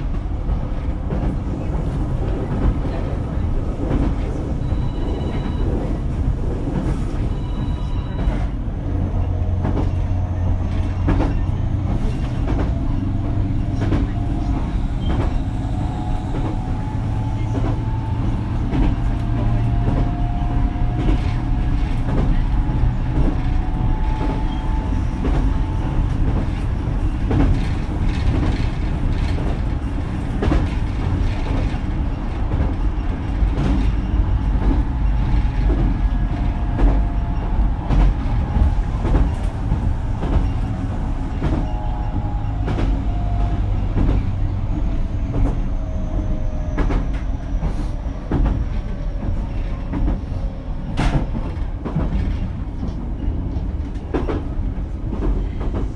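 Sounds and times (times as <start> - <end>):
train running rumble: 0.0 - 55.9.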